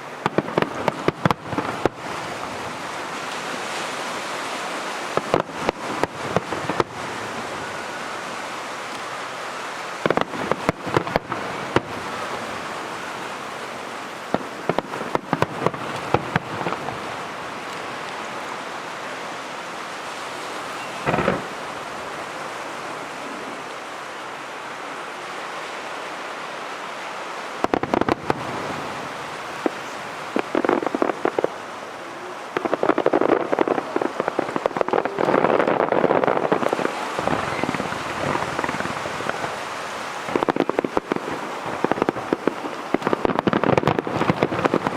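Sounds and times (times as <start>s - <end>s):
fireworks bangs: 0.0s - 23.5s, 27.6s - 44.9s
steady hiss: 0.0s - 44.9s
crackling of bursting shells: 20.8s - 21.7s.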